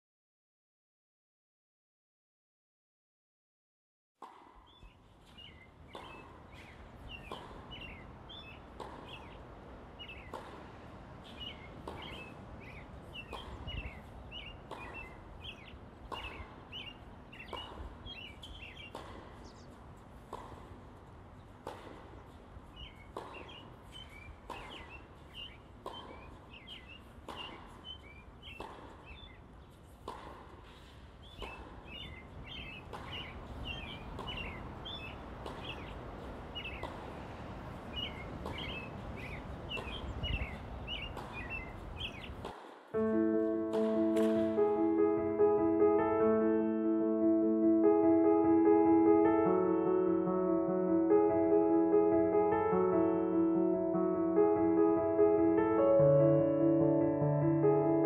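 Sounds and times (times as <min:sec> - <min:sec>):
small birds chirping: 0:04.3 - 0:43.1.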